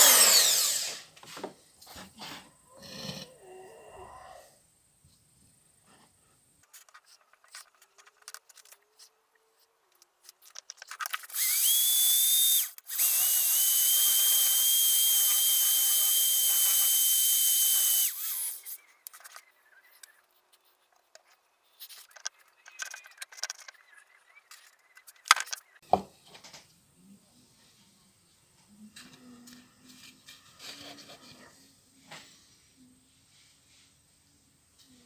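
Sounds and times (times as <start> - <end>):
power tool whining: 0.0 - 1.1, 11.3 - 18.8.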